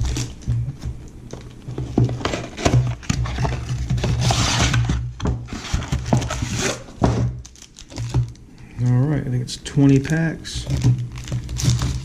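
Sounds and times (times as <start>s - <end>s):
plastic wrap crinkling: 0.0s - 0.6s, 5.5s - 9.0s, 9.8s - 12.0s
low hum: 0.0s - 4.0s
cardboard and plastic scraping: 0.0s - 8.4s, 10.0s - 12.0s.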